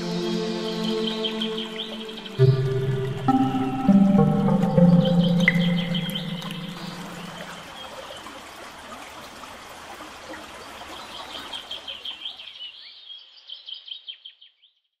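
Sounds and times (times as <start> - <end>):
songbirds chirping: 0.0 - 8.4.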